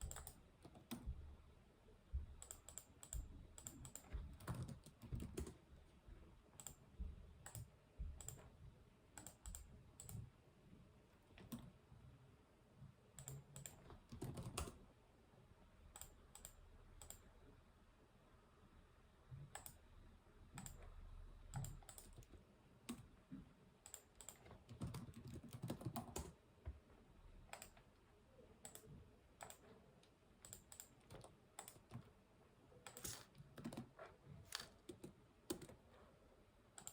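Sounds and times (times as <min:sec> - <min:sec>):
computer keyboard typing: 0:00.0 - 0:01.1, 0:02.4 - 0:05.6, 0:09.2 - 0:10.2, 0:13.2 - 0:14.8, 0:20.5 - 0:20.8, 0:21.5 - 0:23.0, 0:23.9 - 0:26.4, 0:27.4 - 0:27.9, 0:28.6 - 0:29.7, 0:30.4 - 0:32.1, 0:32.8 - 0:35.8.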